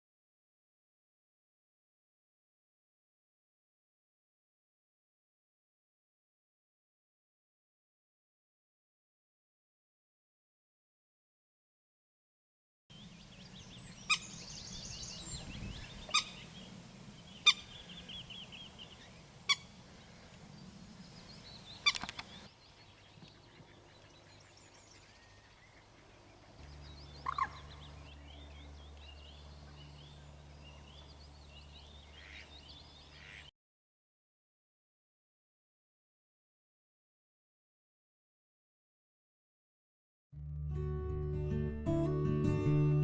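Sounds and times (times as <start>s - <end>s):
low steady hum: 12.9s - 33.3s
birds twittering: 12.9s - 33.5s
sharp loud bird calls: 13.3s - 20.3s, 21.0s - 33.5s.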